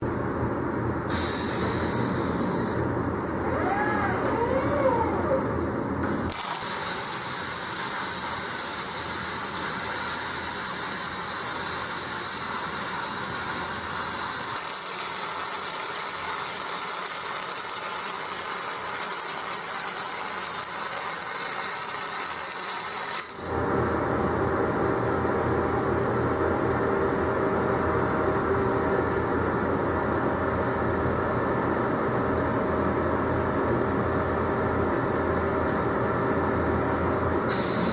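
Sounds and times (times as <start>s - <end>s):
welding arc hissing: 1.1s - 2.8s, 3.7s - 23.5s, 37.5s - 37.9s
faint gliding whines: 3.4s - 5.7s.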